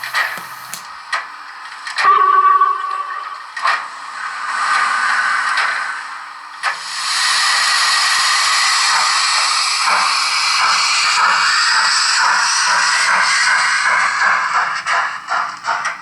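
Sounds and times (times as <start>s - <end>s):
model locomotive steam hiss: 0.0s - 1.0s, 6.6s - 16.0s
short click: 0.0s - 1.0s.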